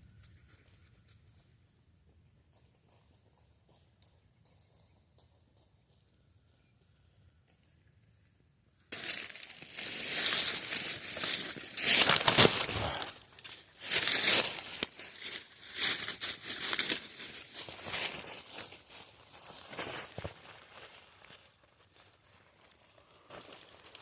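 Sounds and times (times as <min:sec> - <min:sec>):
crinkling and rustling: 0:08.9 - 0:24.0.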